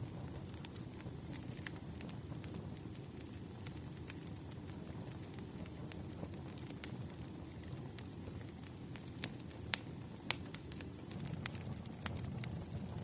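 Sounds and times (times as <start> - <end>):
logs crackling and popping: 0.0 - 13.0
low rumble of flames: 0.0 - 13.0.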